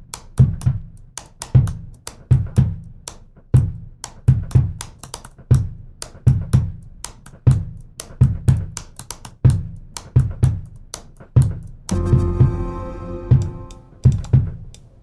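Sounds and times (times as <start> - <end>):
deep percussion thumps: 11.9 - 14.5.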